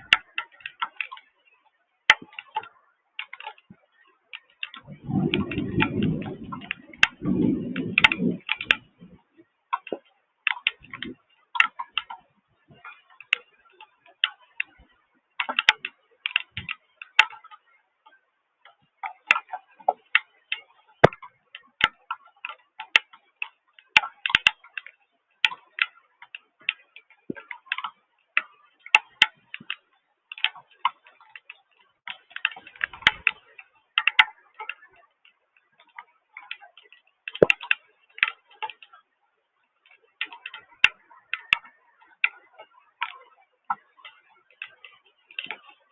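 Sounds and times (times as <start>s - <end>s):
raindrops ticking on hard surface: 2.1s - 39.1s, 39.8s - 45.9s
low rumble: 4.9s - 9.2s.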